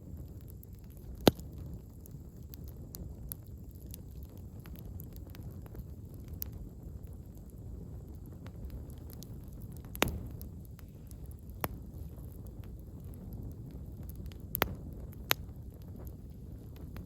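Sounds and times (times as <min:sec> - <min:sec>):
campfire crackling: 0:00.0 - 0:17.0
sharp loud pop: 0:10.0 - 0:10.5.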